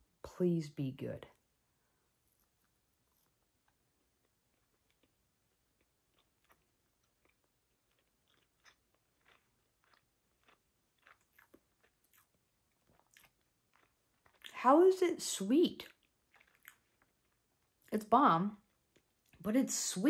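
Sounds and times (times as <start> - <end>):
faint chewing mouth clicks: 2.3 - 14.6, 15.8 - 17.7.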